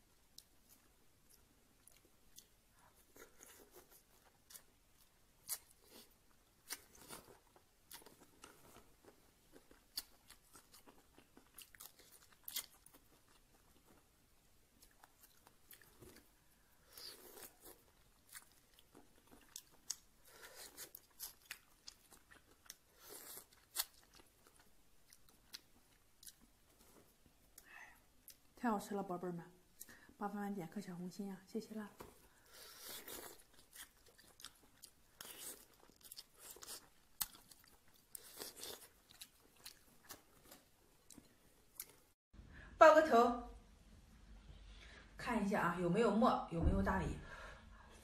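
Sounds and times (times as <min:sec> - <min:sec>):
crunching and chewing: 0:00.3 - 0:27.6, 0:32.0 - 0:42.2.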